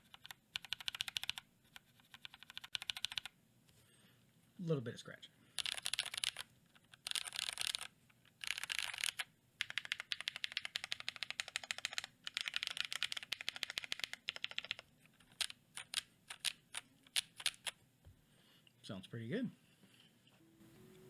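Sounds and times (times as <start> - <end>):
typing on mechanical keyboard: 0.0 - 3.3, 5.6 - 17.8.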